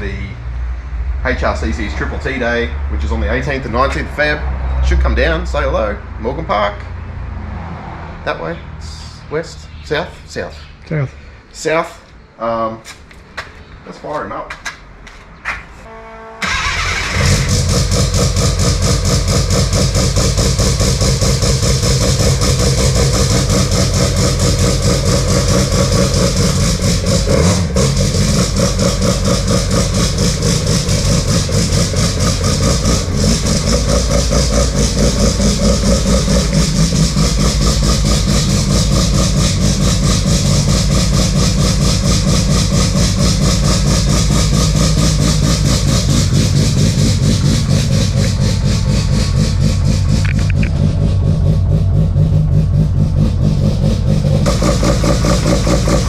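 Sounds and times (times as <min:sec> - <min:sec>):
rotary engine idling: 0:16.4 - 0:56.0.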